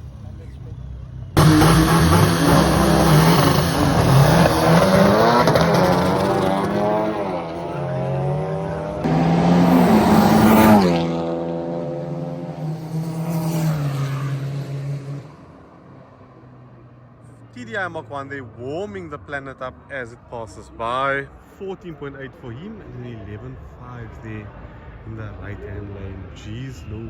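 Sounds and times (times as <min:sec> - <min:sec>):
drag racing cars accelerating: 0:00.0 - 0:17.0
engine passing by: 0:00.0 - 0:17.1.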